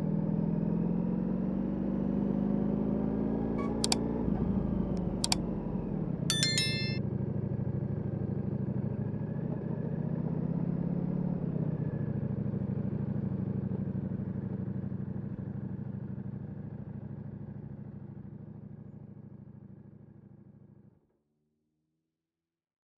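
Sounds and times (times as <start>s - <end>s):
electronic beeps: 6.3s - 7.0s.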